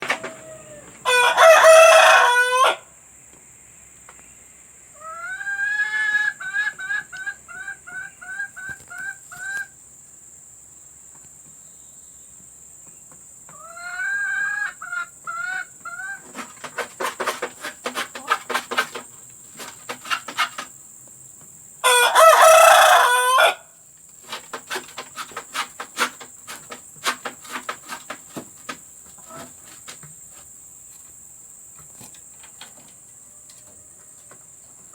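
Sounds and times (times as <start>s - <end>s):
hens cackling: 0.0s - 2.9s, 4.9s - 9.8s, 13.5s - 20.8s, 21.8s - 30.0s
rooster crowing: 0.0s - 2.9s, 21.8s - 23.7s
quick irregular clucking: 6.4s - 9.7s, 15.9s - 20.8s, 24.2s - 30.1s.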